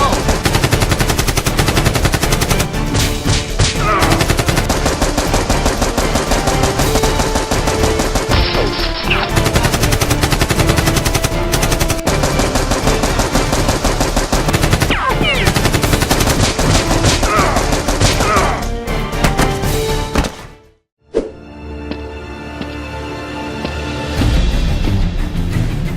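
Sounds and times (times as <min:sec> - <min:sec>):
automatic gunfire: 0:00.0 - 0:02.7, 0:03.9 - 0:18.4
background music: 0:00.0 - 0:25.9.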